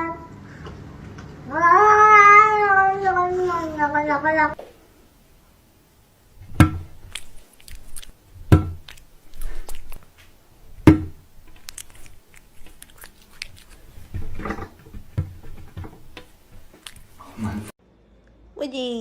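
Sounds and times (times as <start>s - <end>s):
mouth clicks and smacking: 6.4s - 17.7s
loud chewing crunches: 6.8s - 17.4s.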